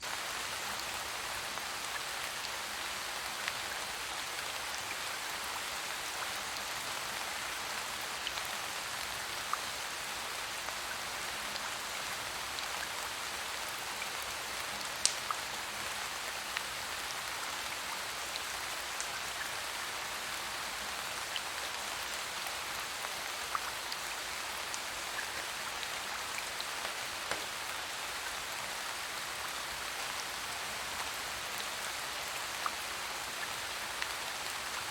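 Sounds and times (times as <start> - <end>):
steady rain hiss: 0.0 - 34.9
sharp rain ticks: 15.0 - 15.4, 26.4 - 27.8.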